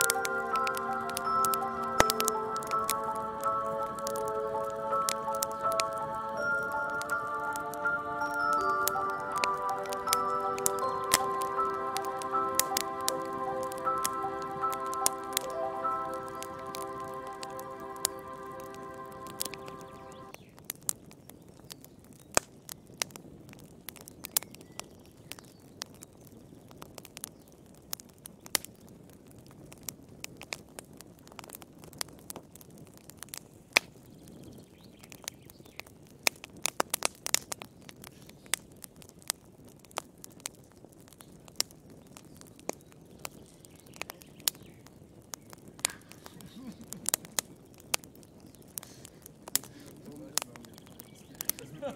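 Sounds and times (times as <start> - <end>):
wood fire crackling and popping: 0.0 - 51.9
low rumble of flames: 20.2 - 51.9.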